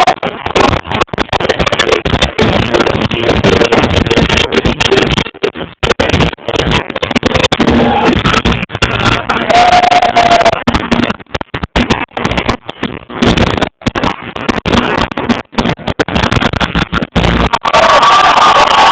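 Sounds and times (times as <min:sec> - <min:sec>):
voice through sound system: 0:00.0 - 0:11.2
distorted live concert music: 0:00.0 - 0:18.9.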